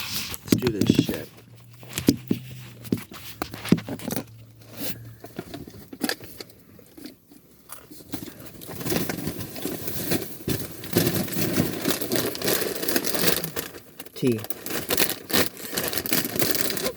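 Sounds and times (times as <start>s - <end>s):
snack packaging rustling: 7.7s - 16.9s.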